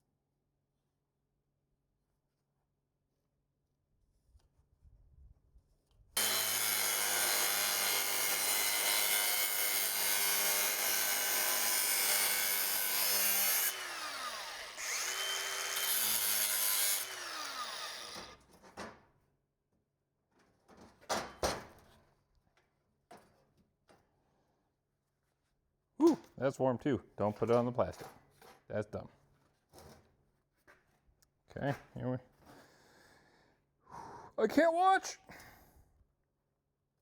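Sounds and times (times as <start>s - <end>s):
angle grinder cutting steel: 6.2s - 18.4s.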